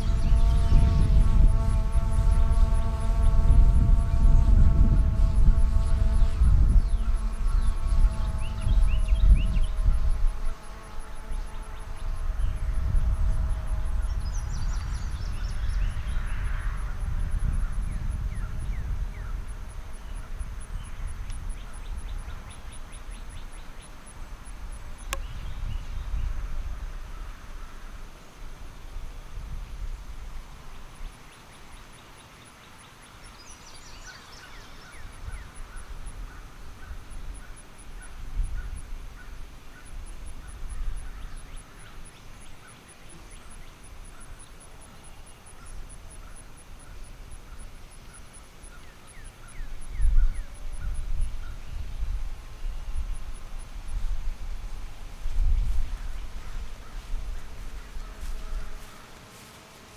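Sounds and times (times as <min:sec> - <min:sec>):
wind rumble on microphone: 0:00.0 - 0:31.2, 0:34.8 - 0:41.7, 0:49.4 - 0:59.0.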